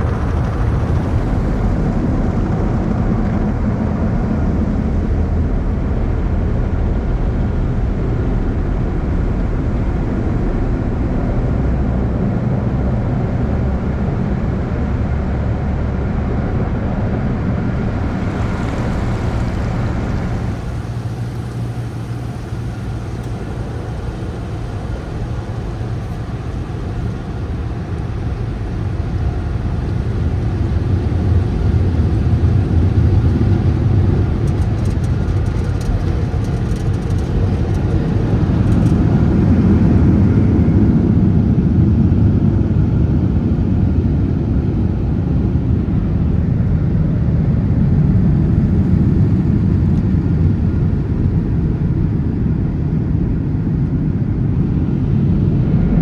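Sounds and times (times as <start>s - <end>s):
car wash machinery rumbling: 0.0s - 2.1s, 12.9s - 52.6s.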